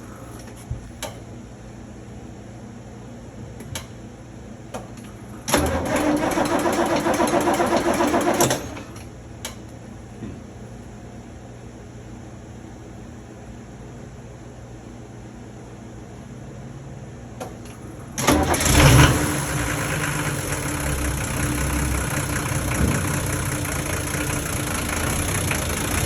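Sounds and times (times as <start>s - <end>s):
starter cranking engine: 5.5s - 9.0s, 18.1s - 26.0s.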